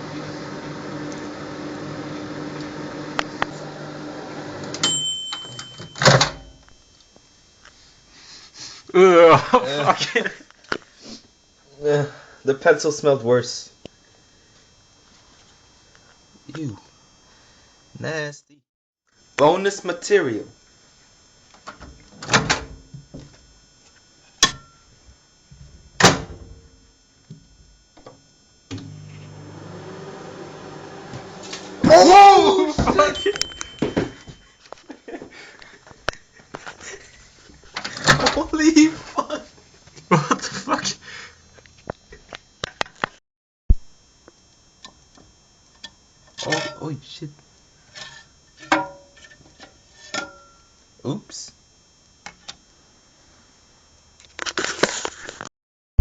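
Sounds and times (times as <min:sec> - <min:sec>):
microwave oven humming: 0:00.0 - 0:17.9, 0:19.2 - 0:42.9, 0:43.9 - 0:54.5
high beep: 0:32.9 - 0:34.7.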